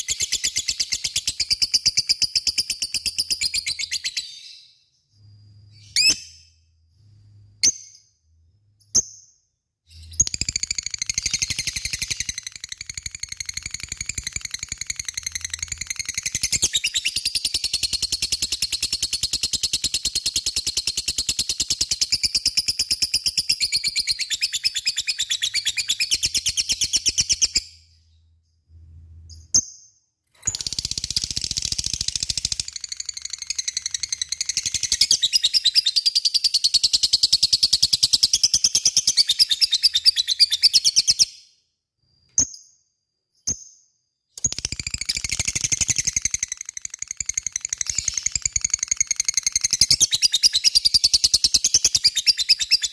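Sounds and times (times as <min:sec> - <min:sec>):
lovebird chattering trill: 0:44.4 - 0:52.9.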